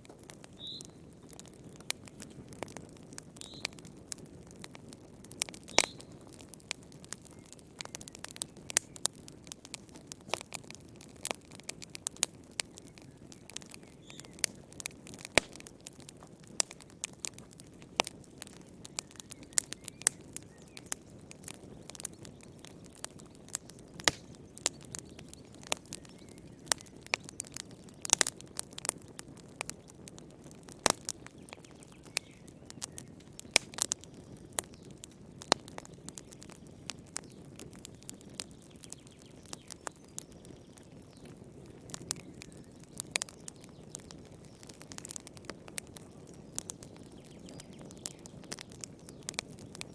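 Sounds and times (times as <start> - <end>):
low rush of flames: 0.0 - 38.9
campfire crackling: 0.0 - 49.9.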